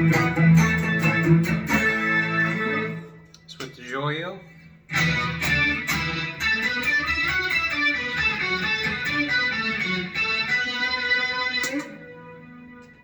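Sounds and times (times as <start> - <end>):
synth electric guitar lead notes: 0.0 - 3.3, 4.9 - 13.0.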